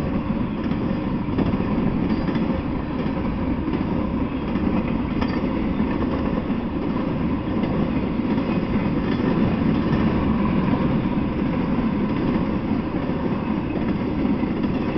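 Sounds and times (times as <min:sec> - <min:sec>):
train wheels on rails: 0:00.0 - 0:14.9.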